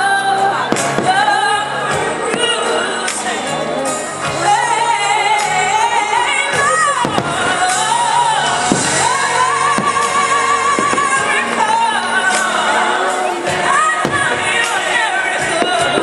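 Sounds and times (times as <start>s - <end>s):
singer over loudspeaker music: 0.0s - 16.0s
firework bangs: 7.0s - 12.5s, 13.9s - 16.0s.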